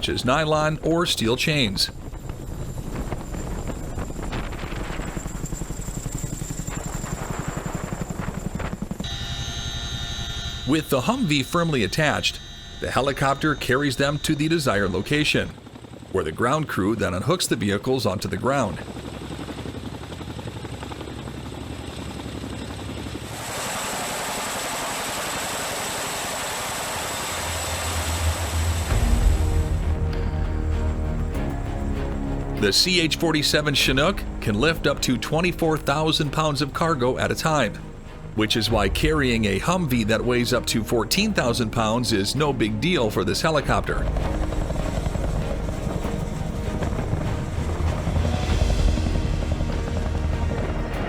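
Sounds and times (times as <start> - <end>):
high whine: 0.0 - 16.2, 23.3 - 51.0
helicopter rotor blades beating: 0.0 - 51.0
steady hum with fixed tones: 9.0 - 15.2, 23.4 - 31.2
low steady hum: 9.0 - 16.3, 24.5 - 51.0
loud rushing noise: 23.4 - 32.4.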